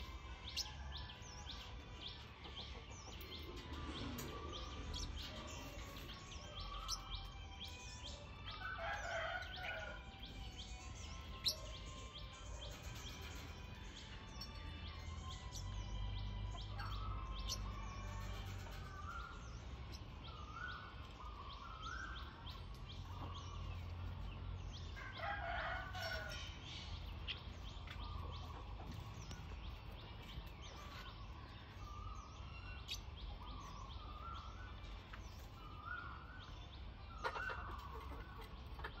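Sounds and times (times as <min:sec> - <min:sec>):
birds chirping and calling: 0:00.0 - 0:39.0.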